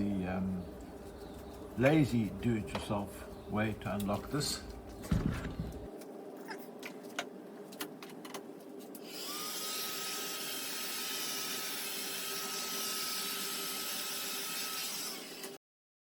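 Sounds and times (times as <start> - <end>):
drill motor whine: 9.0 - 15.6.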